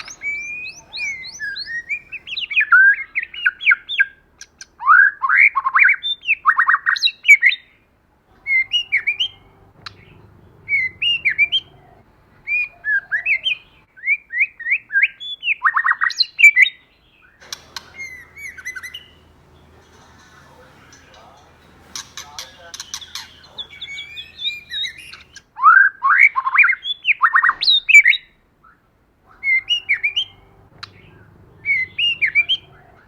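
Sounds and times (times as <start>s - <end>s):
bird singing whistled notes: 0.0s - 4.1s, 8.4s - 25.4s, 29.3s - 33.0s.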